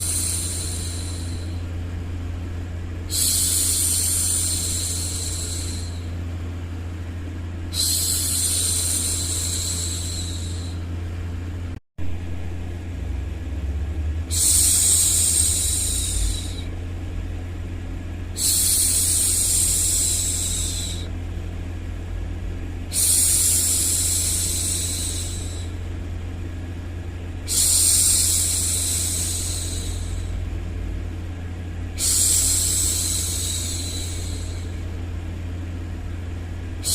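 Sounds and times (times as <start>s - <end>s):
woman shushing: 0.0s - 1.6s, 7.7s - 10.8s, 14.3s - 16.7s, 32.0s - 34.7s
low rumbling white noise: 0.0s - 36.9s.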